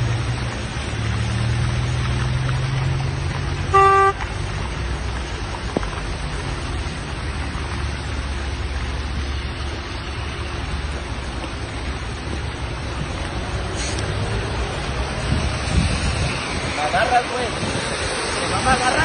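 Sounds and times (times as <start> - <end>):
car driving rumble: 0.0 - 19.0
car horn toot: 3.7 - 4.2.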